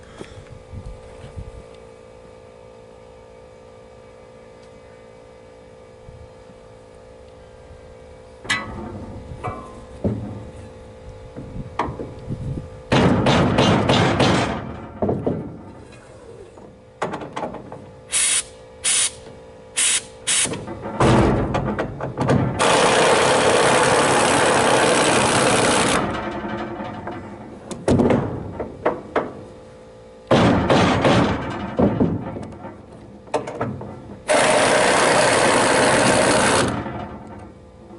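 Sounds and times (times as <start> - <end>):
tools knocking and clattering: 20.7 - 22.6
power tool running: 22.5 - 26.6, 34.2 - 37.1.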